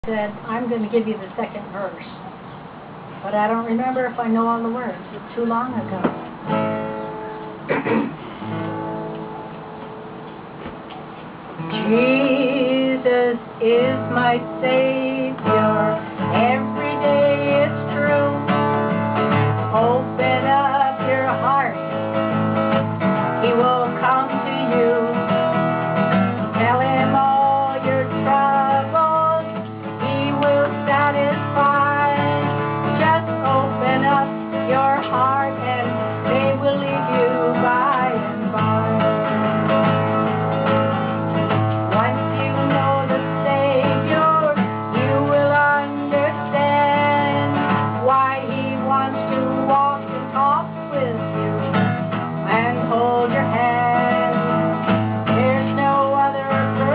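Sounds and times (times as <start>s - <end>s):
acoustic guitar strumming: 0.0s - 56.9s
woman singing gospel song: 11.6s - 18.6s, 19.6s - 21.8s, 23.4s - 25.4s, 26.5s - 39.3s, 41.9s - 51.6s, 52.4s - 54.7s, 55.3s - 56.9s.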